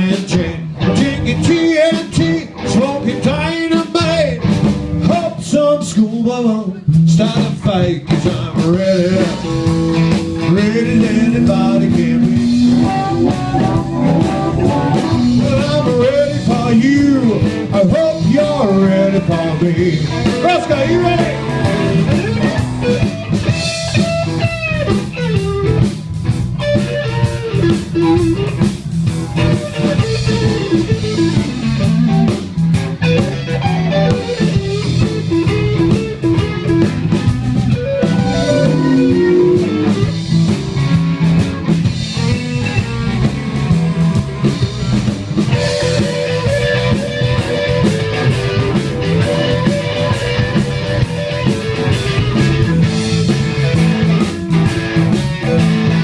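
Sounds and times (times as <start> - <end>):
drum kit: 0.0 - 5.5, 6.8 - 56.0
bass: 0.0 - 56.0
electric guitar solo: 9.0 - 17.7, 33.0 - 43.4, 45.5 - 56.0.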